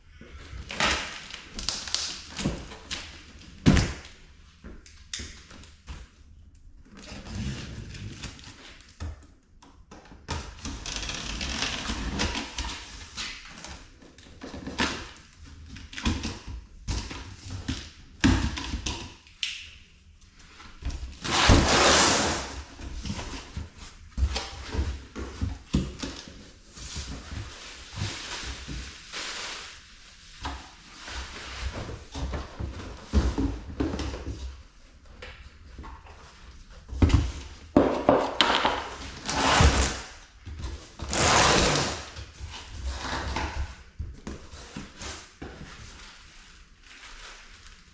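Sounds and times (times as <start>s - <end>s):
objects tapping and knocking: 36.9s - 39.0s.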